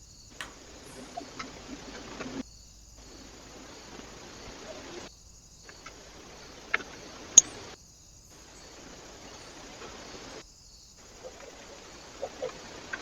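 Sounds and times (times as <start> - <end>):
steady hiss: 0.0 - 13.0
sharp clicks: 0.3 - 2.4.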